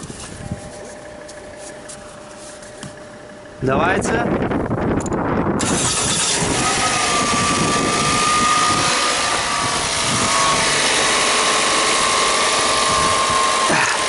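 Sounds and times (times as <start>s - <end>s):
faint steady whine: 0.0s - 13.5s
car engine idling with clatter: 0.0s - 14.0s.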